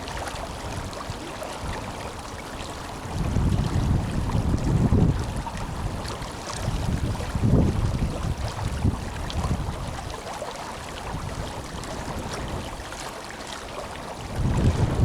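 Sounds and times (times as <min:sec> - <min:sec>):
wind buffeting microphone: 0:02.8 - 0:10.3, 0:14.0 - 0:15.0.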